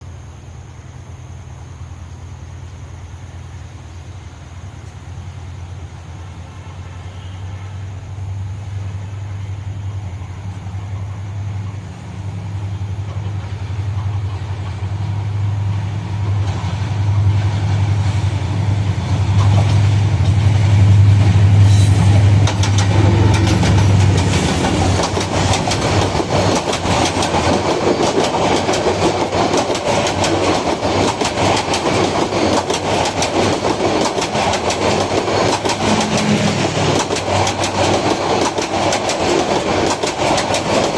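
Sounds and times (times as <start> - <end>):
locomotive engine drone: 0.0 - 40.9
train wheels clattering over rail joints: 16.2 - 40.9.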